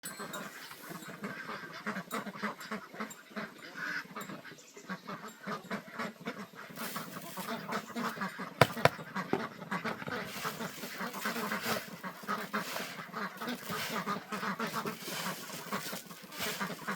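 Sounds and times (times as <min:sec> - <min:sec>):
waterfowl calling: 0:04.8 - 0:16.9
sharp knocks: 0:08.6 - 0:09.5.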